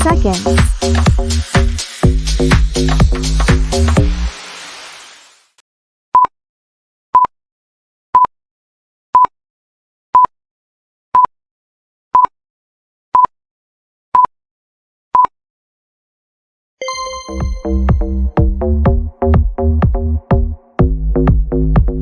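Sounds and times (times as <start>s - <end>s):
dance music: 0.0s - 5.3s, 16.8s - 22.0s
interval timer beeping: 16.8s - 18.6s.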